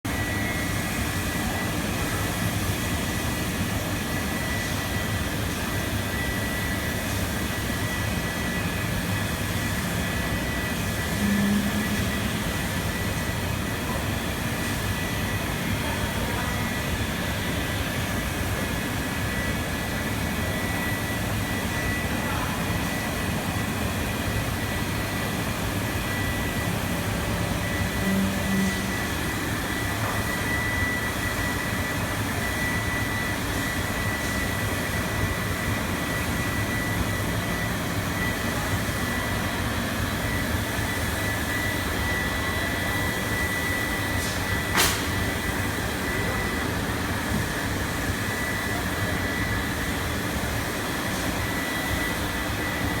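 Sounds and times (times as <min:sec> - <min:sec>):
machine drone with high whine: 0:00.1 - 0:53.0.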